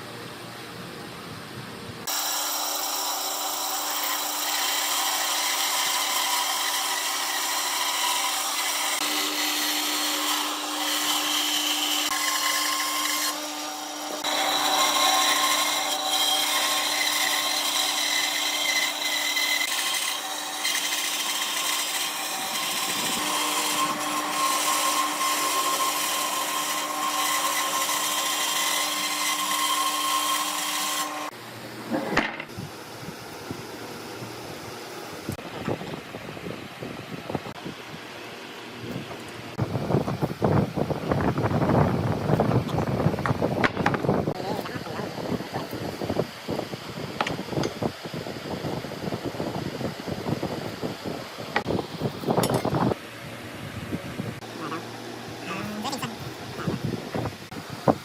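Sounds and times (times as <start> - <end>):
power tool whining on wood: 2.0 - 32.0.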